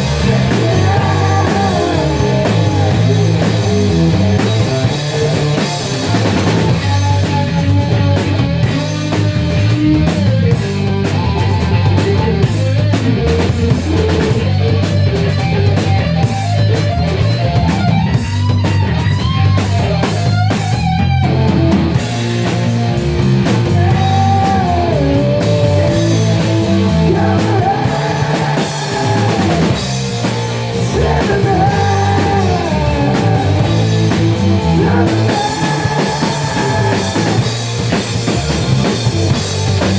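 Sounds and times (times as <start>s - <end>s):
electric guitar bending melody: 0.0s - 39.9s
rock band playing: 0.0s - 39.9s.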